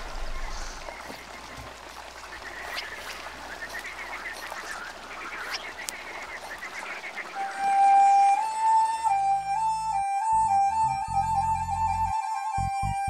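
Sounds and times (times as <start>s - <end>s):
waterbirds calling: 0.0s - 13.0s
flute melody: 7.4s - 13.0s.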